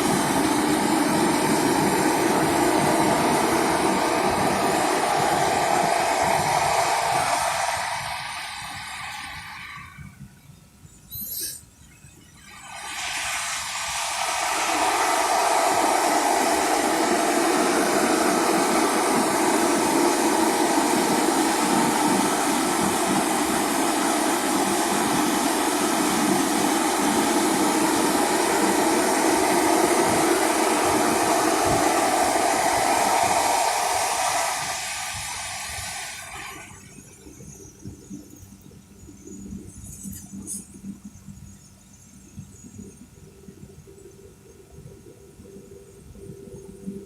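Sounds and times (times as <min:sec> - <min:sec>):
loud rushing noise: 0:00.0 - 0:10.0, 0:12.5 - 0:36.9.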